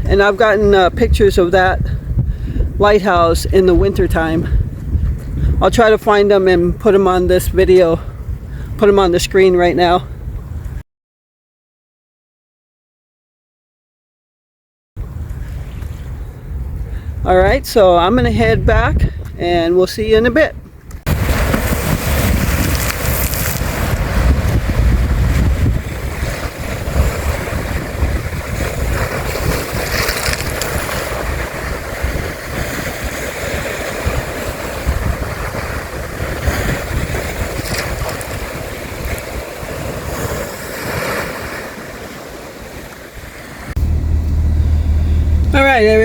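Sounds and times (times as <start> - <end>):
wind buffeting microphone: 0.0 - 10.8, 15.0 - 46.0
waves washing in: 20.9 - 46.0.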